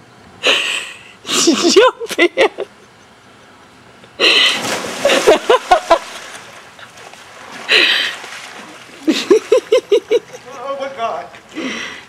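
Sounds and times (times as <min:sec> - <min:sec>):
splashing water: 0:04.4 - 0:10.0
loud splash into water: 0:04.5 - 0:06.7.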